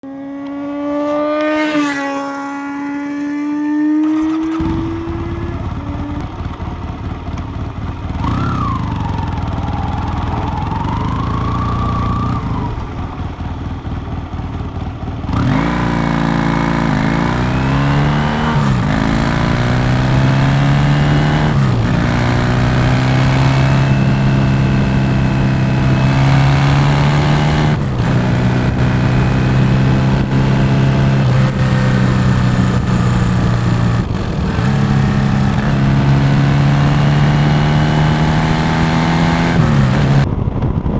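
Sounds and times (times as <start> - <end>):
motorcycle exhaust revving: 1.0 - 40.9.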